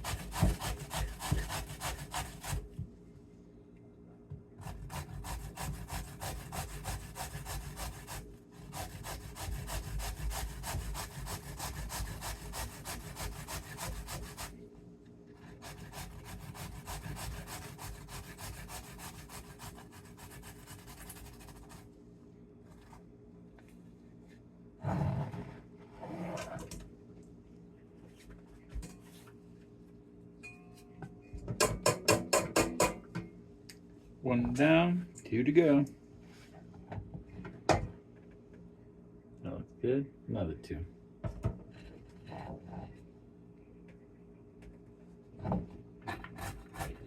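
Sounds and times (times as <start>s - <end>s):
turnip rasping on a grater: 0.0s - 2.6s, 15.5s - 21.7s.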